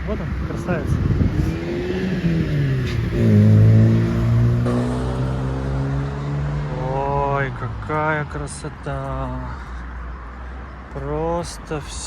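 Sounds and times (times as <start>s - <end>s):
car engine accelerating past: 0.6s - 7.0s.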